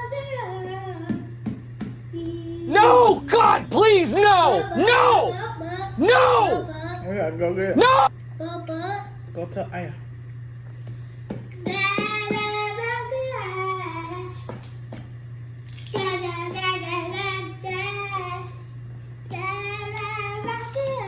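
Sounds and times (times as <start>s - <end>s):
child singing: 2.2s - 7.1s
steady low hum: 2.2s - 8.1s.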